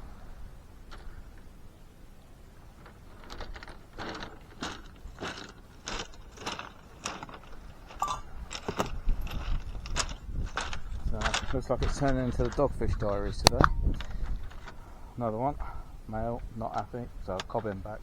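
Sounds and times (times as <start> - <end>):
footsteps crunching on shingle: 2.7 - 14.9, 16.4 - 18.0.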